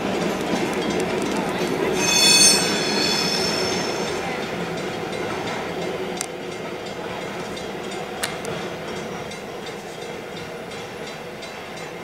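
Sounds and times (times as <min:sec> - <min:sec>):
wheel squeal: 0:01.8 - 0:04.6.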